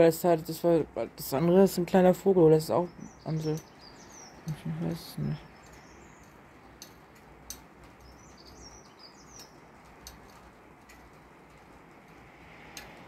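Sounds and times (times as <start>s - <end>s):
small birds chirping: 0.0s - 11.9s
rain hiss: 3.0s - 13.0s.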